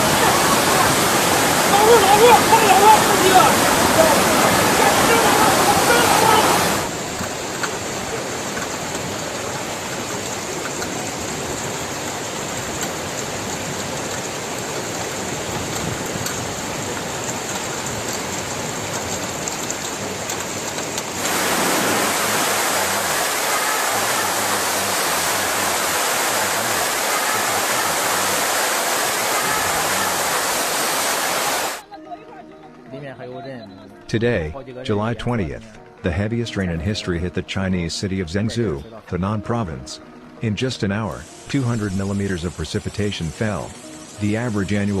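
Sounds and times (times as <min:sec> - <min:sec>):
floodwater rushing: 0:00.0 - 0:31.9.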